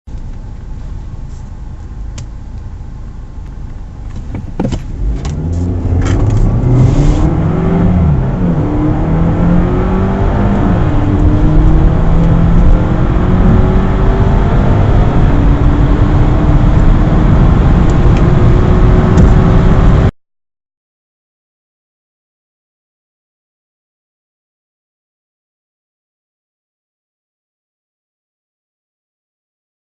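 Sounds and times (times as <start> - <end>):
car engine accelerating: 0.1 - 20.1.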